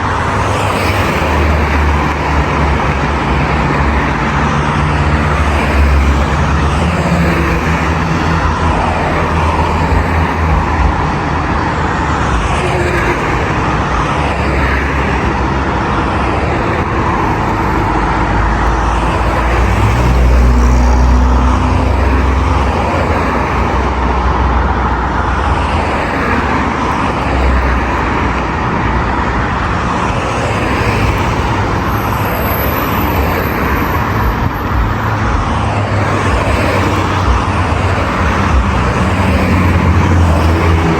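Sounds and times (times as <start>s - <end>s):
road traffic rumble: 0.0s - 40.9s.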